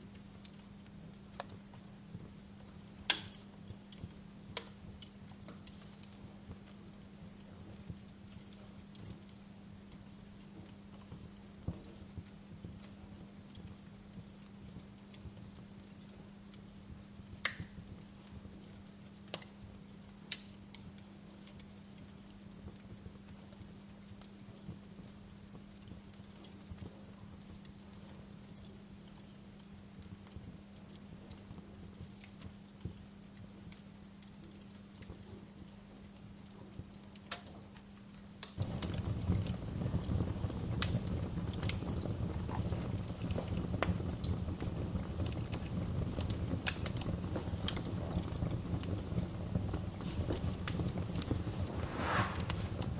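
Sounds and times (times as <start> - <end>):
wood fire crackling: 0.0 - 52.9
sharp pops of fire: 1.3 - 7.2, 17.3 - 18.1, 20.2 - 20.8, 38.4 - 52.9
steady low hum: 46.5 - 52.9
low hum: 51.2 - 52.9.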